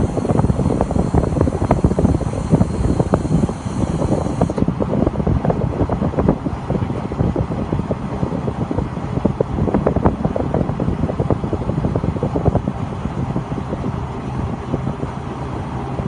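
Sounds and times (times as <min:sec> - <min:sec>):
drilling rig engine: 0:00.0 - 0:04.6.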